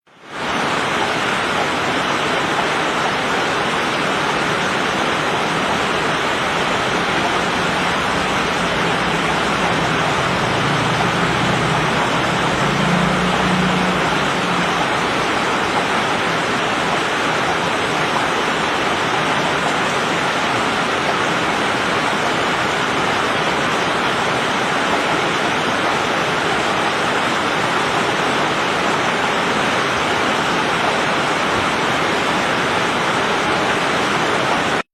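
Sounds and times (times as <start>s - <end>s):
heavy rain hissing: 0.2s - 34.8s.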